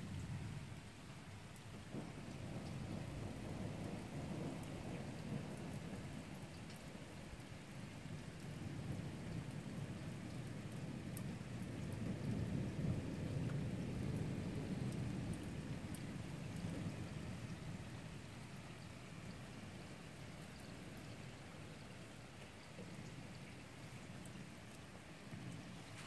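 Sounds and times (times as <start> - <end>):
rain pattering: 0.0 - 26.0
thunder rolling: 11.3 - 18.3.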